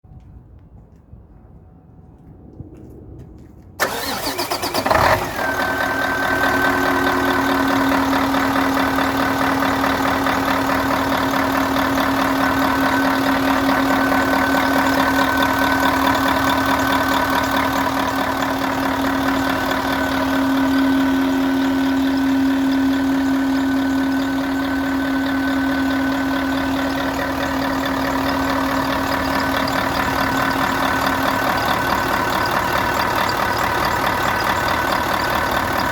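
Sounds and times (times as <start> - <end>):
starter motor cranking: 3.8 - 20.7
diesel engine idling: 3.8 - 35.9.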